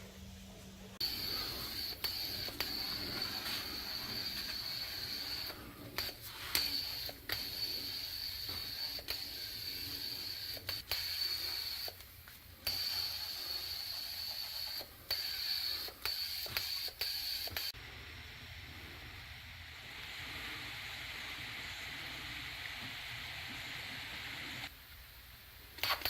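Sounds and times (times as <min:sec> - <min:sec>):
small motor whining: 0:01.0 - 0:12.0.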